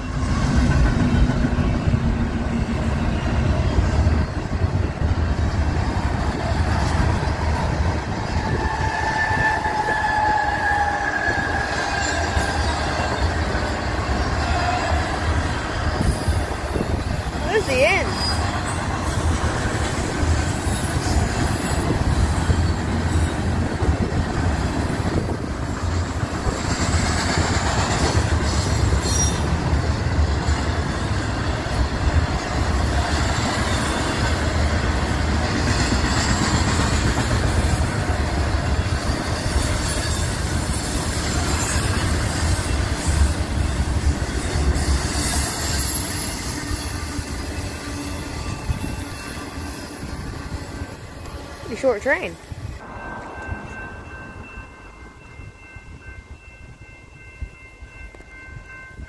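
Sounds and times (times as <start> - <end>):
train wheels rumbling on rail: 0.0 - 59.0
high wheel squeal: 8.2 - 19.3, 20.5 - 24.0, 38.8 - 51.7.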